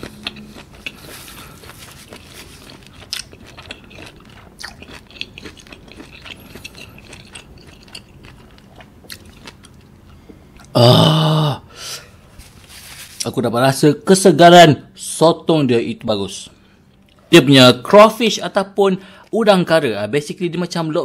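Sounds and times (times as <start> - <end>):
chewing with wet clicks: 0.0 - 10.7, 16.8 - 17.2.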